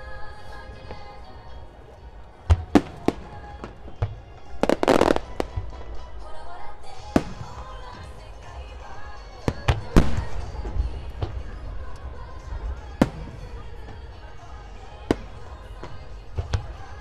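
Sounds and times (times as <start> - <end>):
music: 0.0 - 17.0
fireworks bangs: 2.5 - 6.0, 7.1 - 8.2, 9.5 - 17.0.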